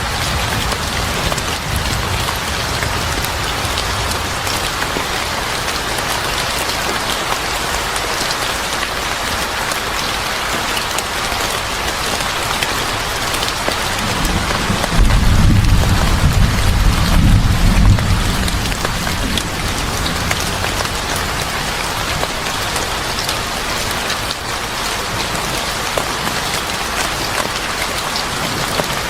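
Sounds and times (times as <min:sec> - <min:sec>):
thunder rumbling: 0:00.0 - 0:05.7, 0:13.9 - 0:22.3
heavy rain pattering: 0:00.0 - 0:29.0.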